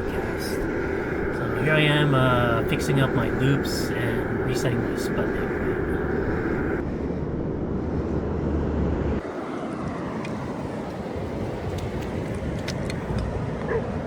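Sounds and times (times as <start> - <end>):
ocean surf rushing: 0.0 - 7.2
wind rumbling on microphone: 0.0 - 14.0.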